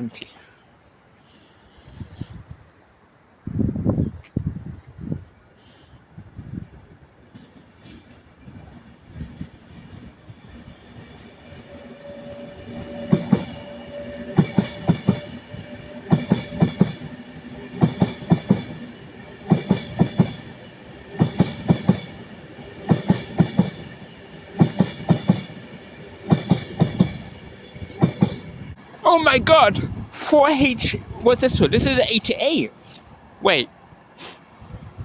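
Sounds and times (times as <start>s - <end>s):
train wheels clicking over rail joints: 7.3s - 28.6s.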